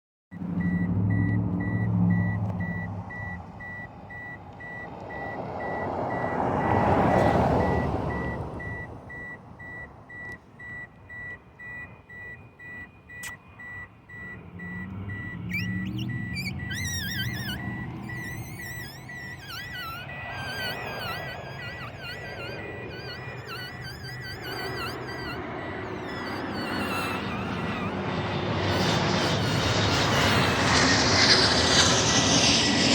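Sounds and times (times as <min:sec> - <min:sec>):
airplane passing overhead: 0:00.4 - 0:32.9
repeating electronic beep: 0:00.6 - 0:31.8
warbling chirps: 0:14.2 - 0:32.9.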